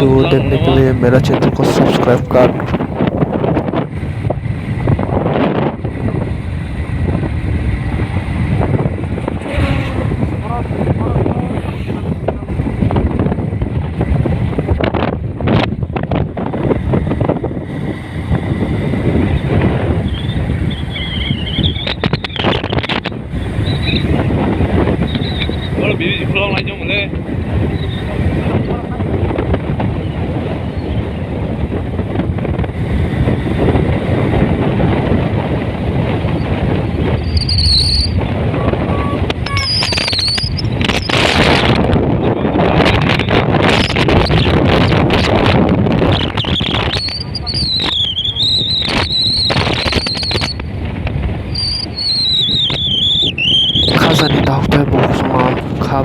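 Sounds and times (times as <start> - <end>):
road noise: 0.0 - 3.6
wind buffeting microphone: 0.0 - 56.0.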